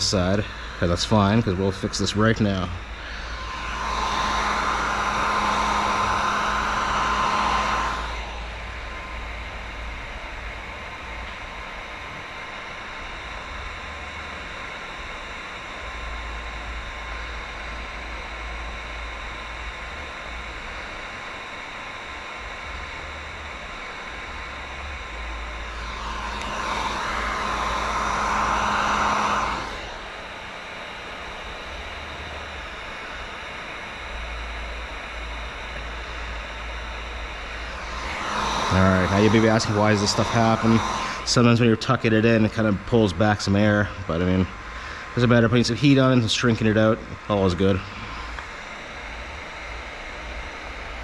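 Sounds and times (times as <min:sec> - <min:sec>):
faint hum: 0:00.0 - 0:51.0
heat gun blowing hiss: 0:00.1 - 0:08.6, 0:25.6 - 0:30.2, 0:37.5 - 0:42.7.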